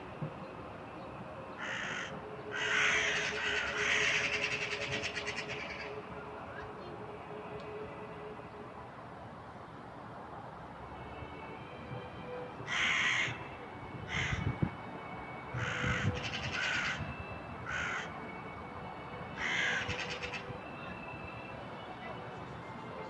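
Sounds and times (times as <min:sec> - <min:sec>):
crows cawing: 0:01.6 - 0:05.9, 0:12.7 - 0:13.4, 0:14.1 - 0:14.5, 0:15.6 - 0:17.0, 0:17.7 - 0:18.2, 0:19.4 - 0:20.5.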